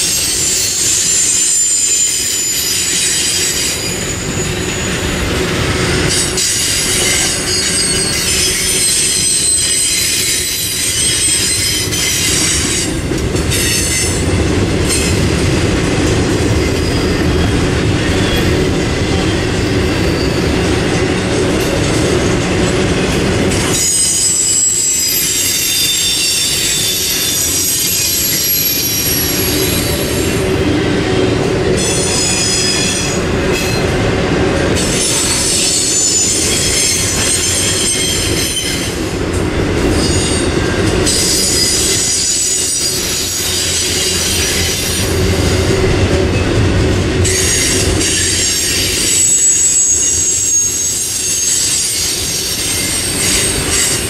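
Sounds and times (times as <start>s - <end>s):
high-pitched wheel squeal: 0.0s - 5.1s, 6.1s - 14.2s, 23.7s - 30.3s, 31.8s - 33.8s, 41.1s - 45.0s, 47.2s - 54.0s
freight train rumbling past: 0.0s - 54.0s.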